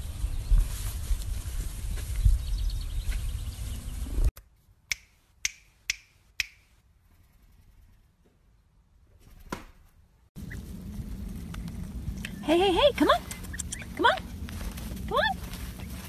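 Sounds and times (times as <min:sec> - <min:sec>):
sharp snapping clicks: 0:04.9 - 0:06.6
low rumble on microphone: 0:10.4 - 0:16.0.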